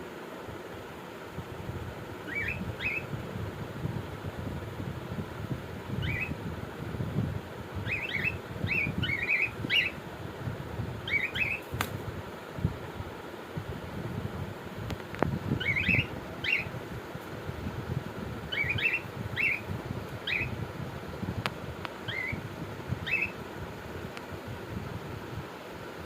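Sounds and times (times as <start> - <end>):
cockatiels chirping: 2.3 - 3.1, 6.0 - 6.3, 7.9 - 10.0, 11.1 - 11.6, 15.6 - 16.7, 18.6 - 19.6, 20.2 - 20.5, 22.1 - 22.4, 23.0 - 23.4.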